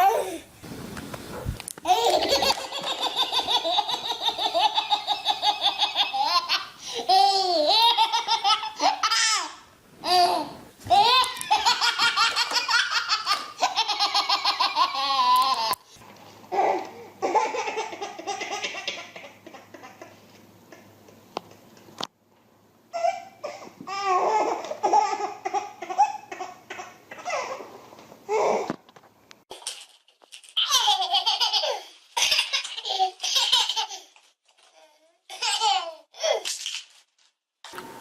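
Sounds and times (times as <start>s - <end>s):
young child laughing: 1.8s - 15.8s.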